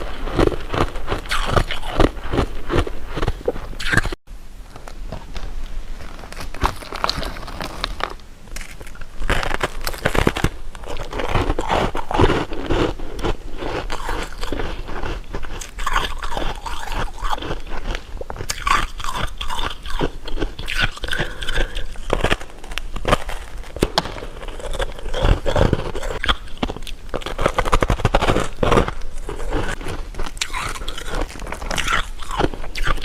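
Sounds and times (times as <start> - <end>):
chewing crunchy sweets: 0.0 - 4.2, 4.8 - 33.0.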